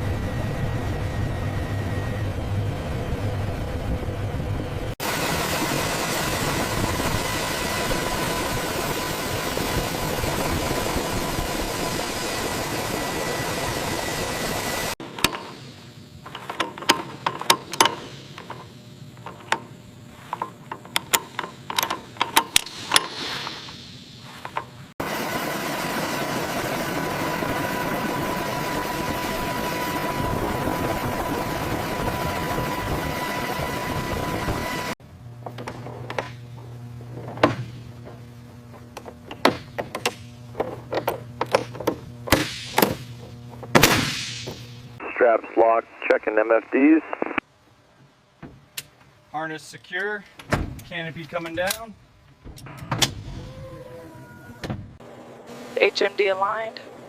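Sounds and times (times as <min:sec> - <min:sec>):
helicopter engine and rotor: 0:00.0 - 0:19.7, 0:25.0 - 0:35.0
loud steady mechanical noise: 0:00.0 - 0:53.4, 0:54.6 - 0:57.0
sharp clicks and knocks: 0:15.1 - 0:15.6, 0:16.2 - 0:19.7, 0:20.3 - 0:23.8, 0:37.2 - 0:43.8.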